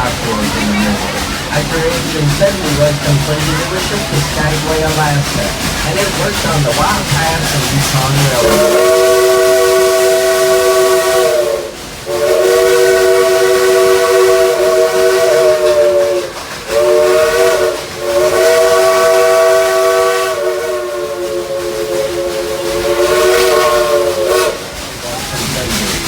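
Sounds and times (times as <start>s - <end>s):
steam locomotive whistle: 0.0s - 24.8s
steam hissing: 0.0s - 26.0s.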